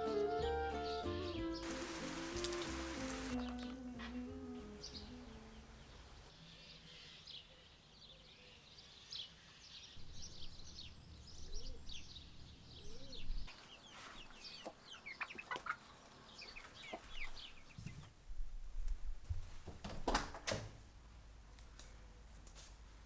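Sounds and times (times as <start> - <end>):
high falling chirps: 0.0 - 5.7
chickens clucking: 14.0 - 18.1.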